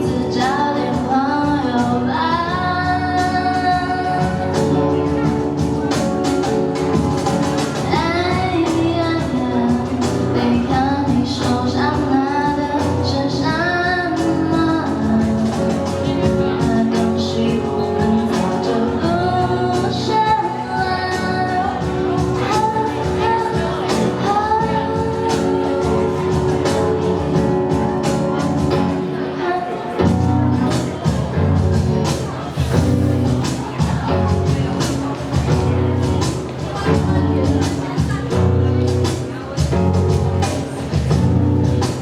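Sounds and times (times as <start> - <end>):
woman singing: 0.0 - 7.0, 7.6 - 32.1
drum kit with cymbal hits: 0.0 - 42.0
guitar: 0.0 - 42.0.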